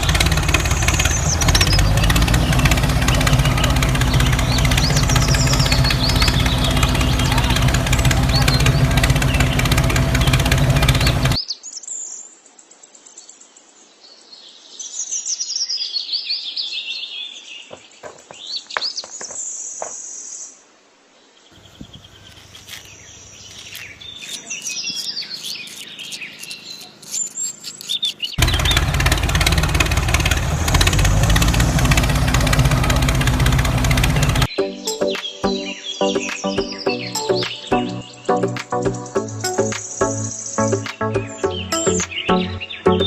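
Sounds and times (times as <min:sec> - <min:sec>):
loud dense sound: 0:00.0 - 0:11.4, 0:28.4 - 0:34.5
birds chirping: 0:00.0 - 0:12.2, 0:14.7 - 0:20.6, 0:21.3 - 0:43.0.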